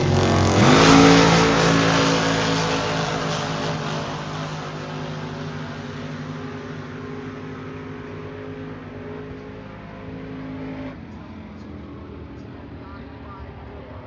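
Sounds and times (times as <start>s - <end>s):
drag racing car engine: 0.0s - 14.0s.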